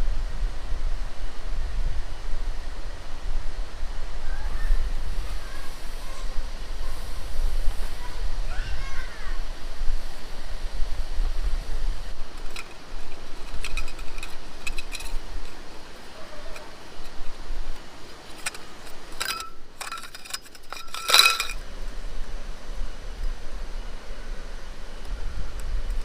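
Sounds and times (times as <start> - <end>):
steady background hiss: 0.0 - 26.0
small hard objects clinking: 12.4 - 21.6.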